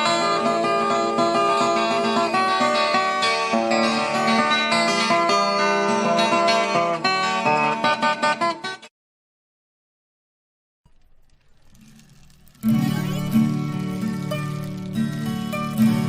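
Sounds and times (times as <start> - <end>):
fast plucked guitar music: 0.0 - 8.8, 11.7 - 16.0.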